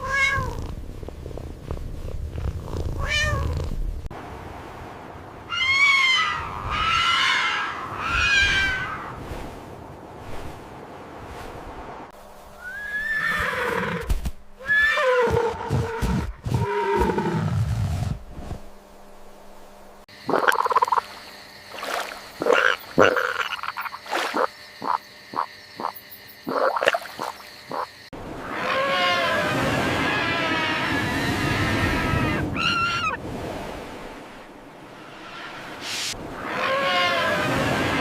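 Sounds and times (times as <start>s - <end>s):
animal call gliding down in pitch: 28.4s - 33.2s, 35.1s - 38.0s.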